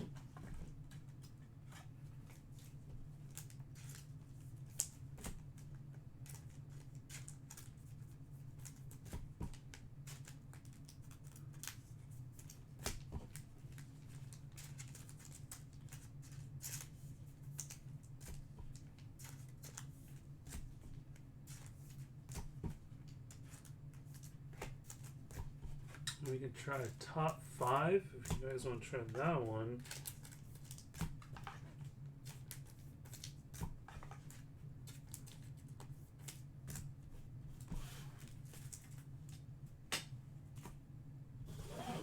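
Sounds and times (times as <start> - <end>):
low room hum: 0.0 - 42.0
card wrappers crinkling: 26.2 - 31.6.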